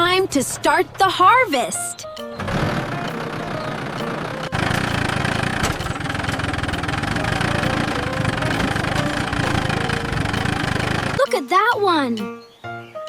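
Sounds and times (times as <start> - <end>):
tractor engine running: 2.2 - 11.3.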